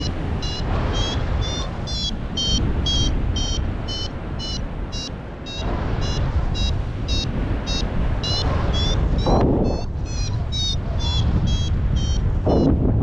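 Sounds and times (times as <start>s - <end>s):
variometer beeping: 0.0s - 12.8s
wind noise on microphone: 0.0s - 13.0s.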